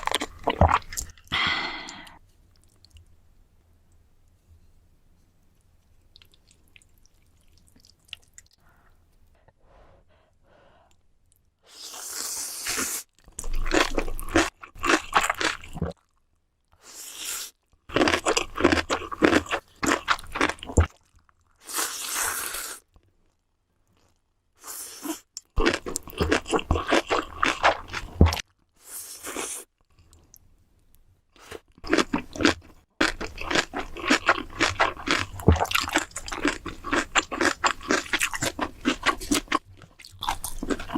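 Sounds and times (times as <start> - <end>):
person chewing crunchy food: 0.0 - 1.3, 11.8 - 16.2, 17.9 - 22.8, 24.9 - 28.5, 31.4 - 40.9.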